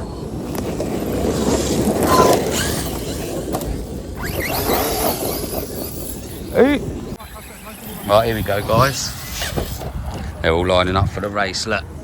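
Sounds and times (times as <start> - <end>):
radio-controlled cars running: 0.0 - 12.0
faint voices: 4.8 - 12.0.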